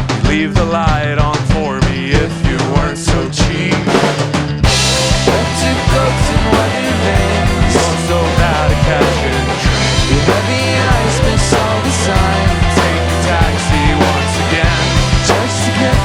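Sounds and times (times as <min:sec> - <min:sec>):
rock band playing: 0:00.0 - 0:16.0.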